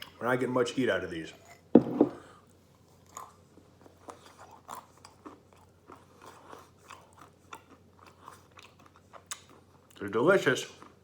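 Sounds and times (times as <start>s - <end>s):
chewing and crunching peanuts: 2.3s - 11.0s.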